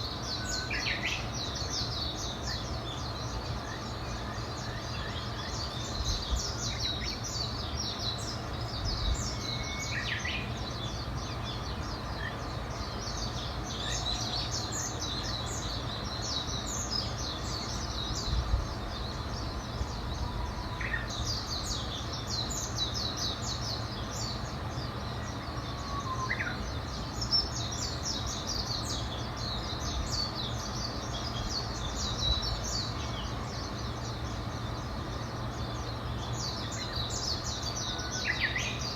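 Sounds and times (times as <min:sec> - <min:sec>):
small birds trilling: 0:00.0 - 0:38.9
lower whistled bird notes: 0:08.7 - 0:12.4, 0:16.9 - 0:23.0, 0:25.2 - 0:27.8.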